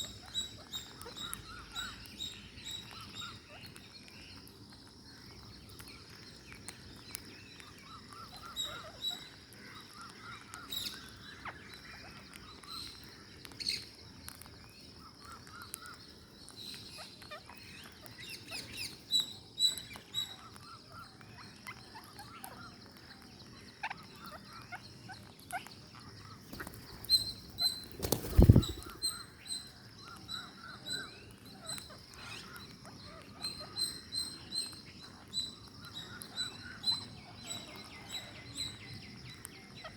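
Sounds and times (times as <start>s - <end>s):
parakeets chattering and squeaking: 0.0s - 3.8s, 8.0s - 13.0s, 16.8s - 19.1s, 19.8s - 29.4s, 30.5s - 34.0s.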